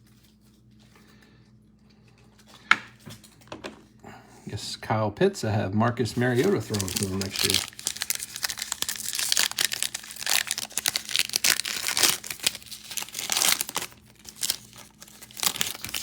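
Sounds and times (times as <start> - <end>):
card wrappers crinkling and tearing: 6.0 - 16.0
cards being handled: 6.1 - 16.0.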